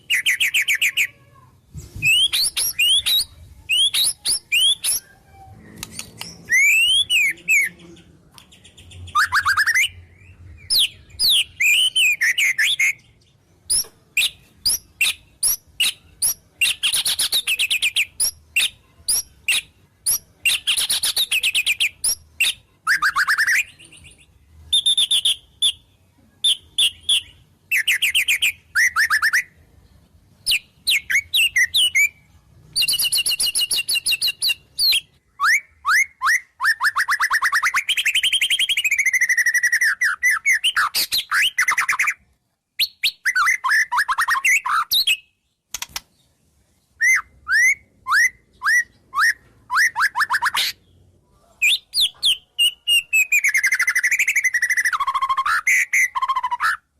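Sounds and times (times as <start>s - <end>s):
songbird singing trills and whistles: 0.0s - 1.1s, 1.9s - 29.6s, 30.4s - 42.2s, 42.8s - 46.0s, 47.0s - 56.9s.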